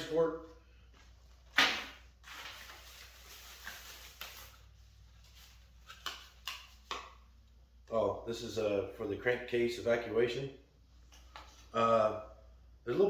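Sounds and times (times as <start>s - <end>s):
packaging rustling: 0.9s - 6.8s.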